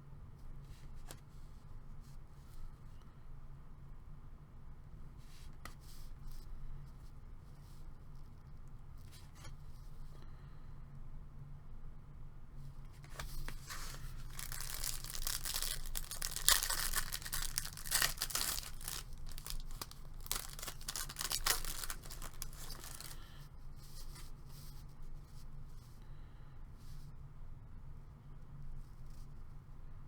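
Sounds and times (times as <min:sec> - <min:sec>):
plastic and foil wrapping tearing: 0:13.4 - 0:23.2.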